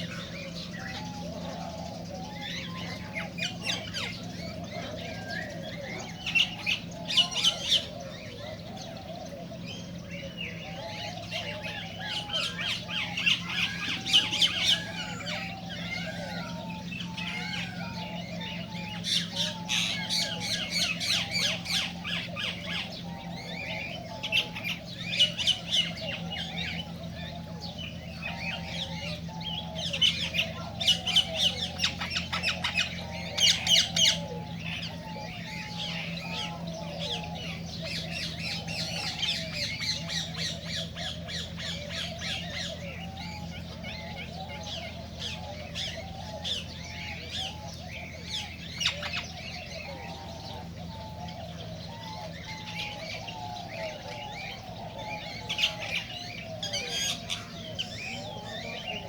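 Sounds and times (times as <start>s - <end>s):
cockatiels squawking: 0.0s - 59.0s.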